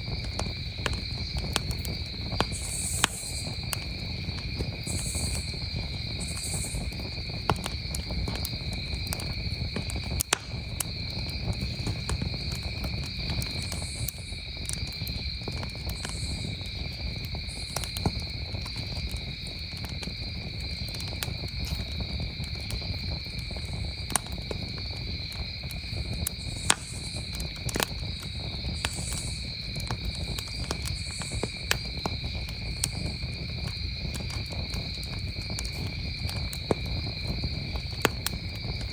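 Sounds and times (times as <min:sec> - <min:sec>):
campfire crackling: 0:00.0 - 0:38.9
crickets trilling: 0:00.0 - 0:38.9
insect buzzes: 0:02.5 - 0:03.7, 0:04.7 - 0:07.2, 0:26.0 - 0:27.3, 0:28.2 - 0:29.6.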